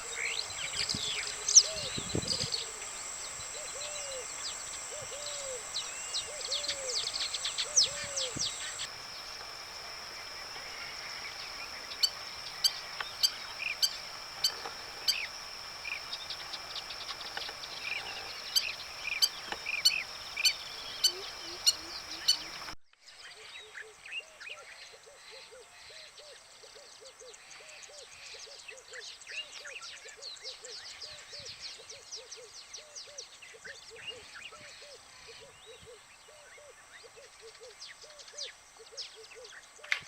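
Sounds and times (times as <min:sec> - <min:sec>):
birds chirping and calling: 0:00.0 - 0:22.8
high insect drone: 0:00.0 - 0:22.8
low hooting call: 0:00.0 - 0:22.8
sharp high chirps: 0:00.0 - 0:22.8.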